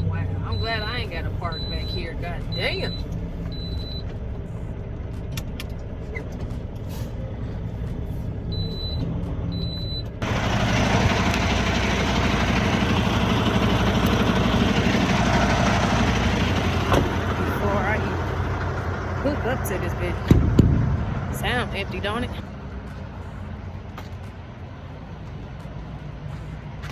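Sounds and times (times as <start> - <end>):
diesel truck engine running: 0.0 - 26.9
loud rushing noise: 20.3 - 21.9.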